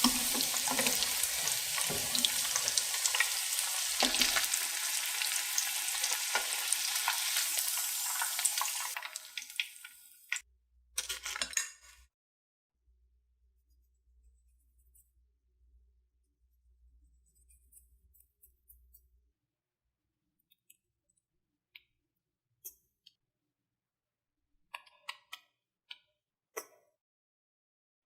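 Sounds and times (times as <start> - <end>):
hot oil sizzling: 0.0 - 10.4.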